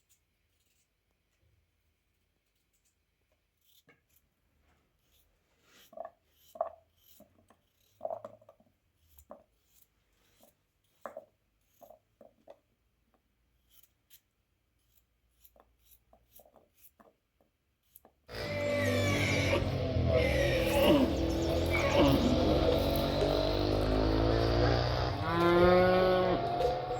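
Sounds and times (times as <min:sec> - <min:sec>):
utensils scraping and knocking: 0:05.2 - 0:12.5, 0:17.9 - 0:26.9
music: 0:18.3 - 0:25.3, 0:26.0 - 0:26.9.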